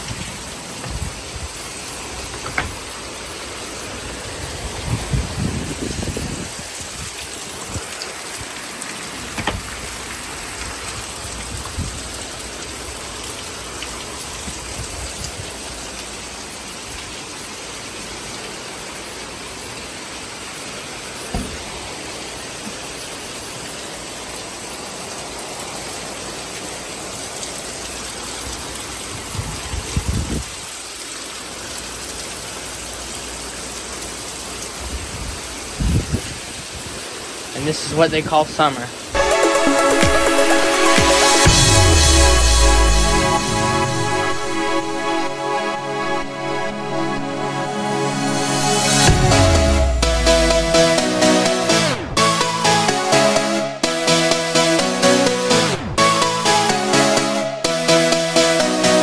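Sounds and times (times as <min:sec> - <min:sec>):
heavy rain pouring: 0:00.0 - 0:59.0
short low thumps: 0:49.1 - 0:51.2.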